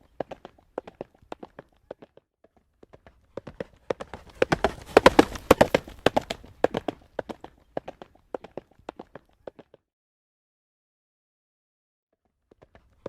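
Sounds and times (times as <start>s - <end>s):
horse hooves on paved road: 0.0s - 9.8s.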